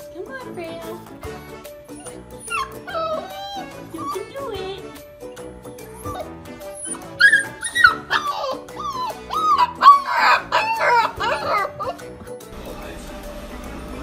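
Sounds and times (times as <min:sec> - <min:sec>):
puppy howling: 0:01.9 - 0:04.4, 0:05.8 - 0:12.2.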